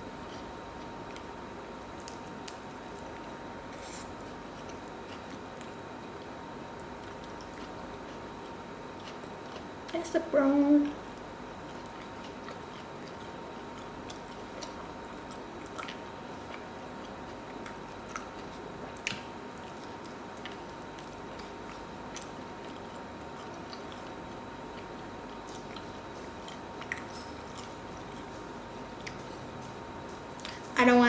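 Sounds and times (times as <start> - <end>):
person chewing food: 0.0 - 10.0, 10.9 - 30.8
faint steady hum: 0.0 - 31.0.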